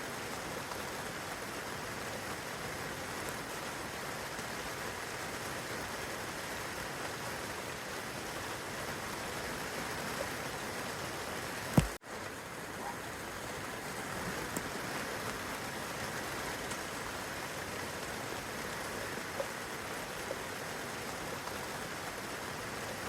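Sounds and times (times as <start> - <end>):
rain on leaves and grass: 0.0 - 23.0
faint raindrop ticks: 3.2 - 5.0, 11.6 - 23.0.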